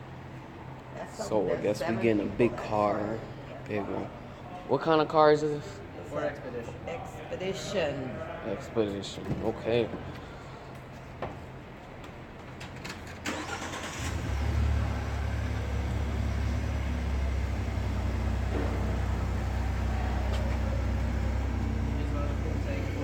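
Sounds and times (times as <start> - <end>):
car engine starting and idling: 12.8 - 23.0.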